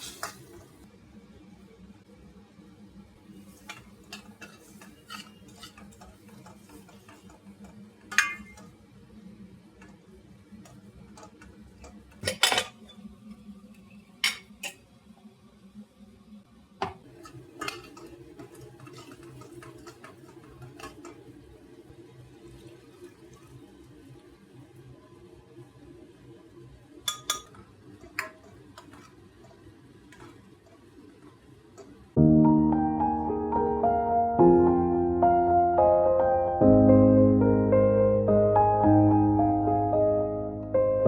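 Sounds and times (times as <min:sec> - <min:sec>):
utensils clinking on dishes: 0:00.0 - 0:00.6, 0:03.6 - 0:08.8, 0:10.7 - 0:13.0, 0:17.1 - 0:21.2, 0:27.1 - 0:30.8.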